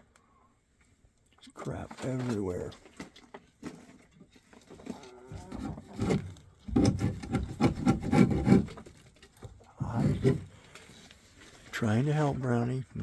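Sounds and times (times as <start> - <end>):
rasping scrapes on wood: 5.8 - 9.0.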